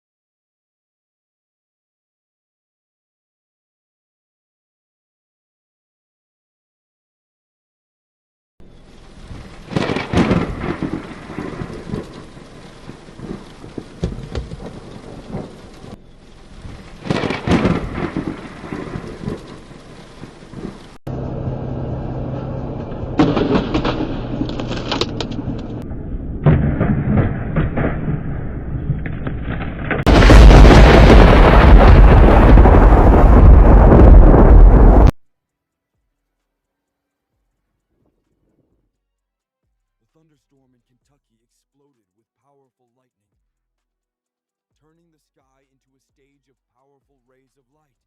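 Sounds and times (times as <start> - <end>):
rain: 8.6 - 21.3, 28.9 - 35.1
thunder cracks and rumbles: 9.0 - 21.0, 25.4 - 35.1.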